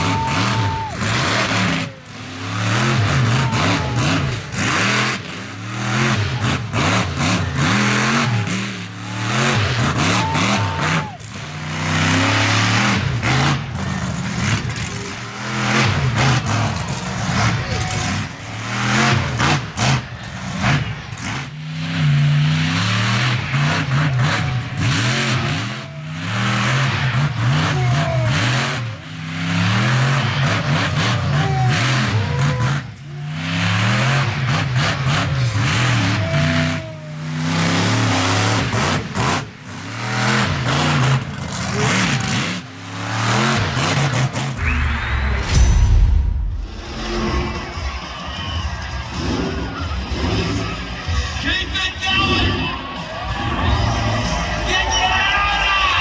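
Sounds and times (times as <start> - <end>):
truck engine revving hard: 0.0 - 56.0.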